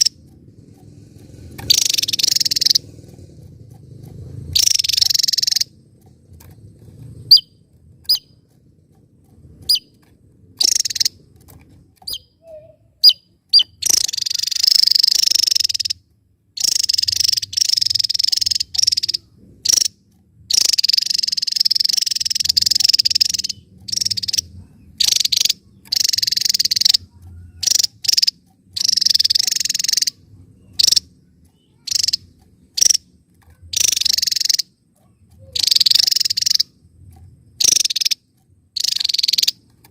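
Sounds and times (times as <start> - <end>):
buzzy high-pitched bird song: 0.0 - 0.2, 1.5 - 2.9, 4.5 - 5.8, 7.2 - 8.4, 9.7 - 10.0, 10.6 - 11.2, 12.0 - 16.0, 16.6 - 36.8, 37.6 - 39.7.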